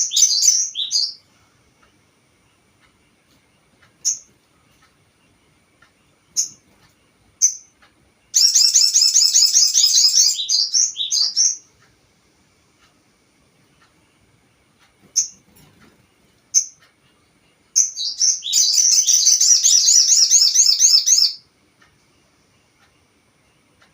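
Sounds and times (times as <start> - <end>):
bird chirps and trill: 0.0 - 1.3, 4.0 - 4.3, 6.3 - 6.6, 7.4 - 11.7, 15.1 - 15.4, 16.5 - 16.8, 17.7 - 21.5.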